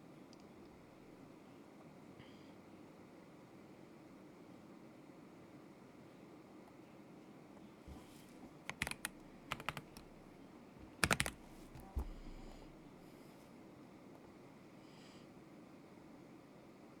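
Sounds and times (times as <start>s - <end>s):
mechanical keyboard keystrokes: 8.7s - 12.8s.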